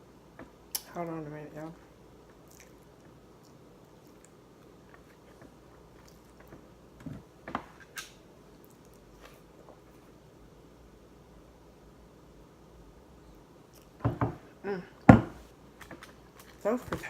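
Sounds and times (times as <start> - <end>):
person chewing food: 2.2 - 6.7.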